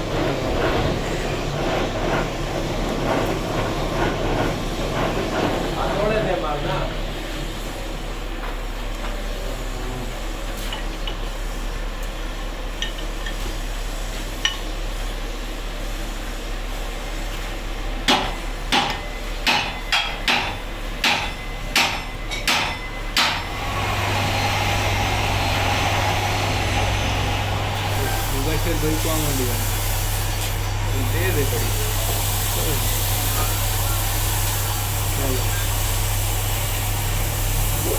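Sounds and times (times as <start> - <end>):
machine humming: 23.1 - 37.9.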